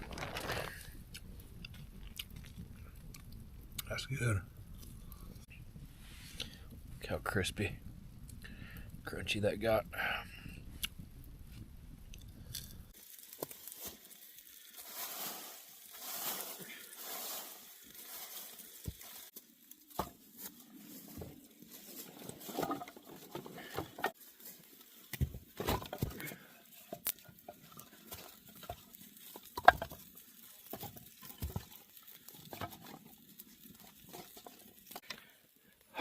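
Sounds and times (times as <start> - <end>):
rustling and crinkling: 0.0 - 3.4, 11.4 - 35.4.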